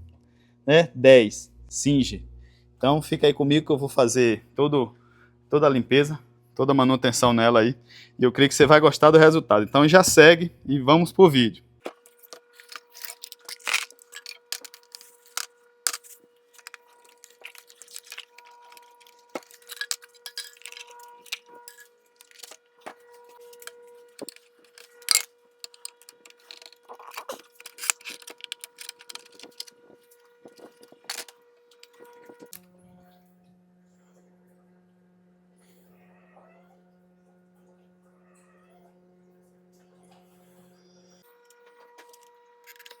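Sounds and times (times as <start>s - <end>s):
faint steady hum: 0.0s - 34.4s
metallic clicks of tools and parts: 12.2s - 22.6s, 23.4s - 29.7s, 30.5s - 32.6s, 42.0s - 43.0s.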